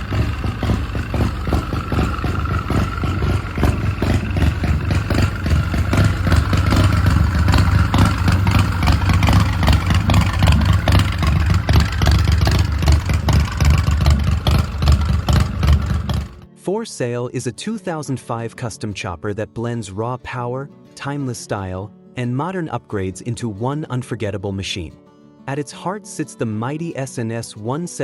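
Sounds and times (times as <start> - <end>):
motorcycle engine running loud: 0.0 - 16.5.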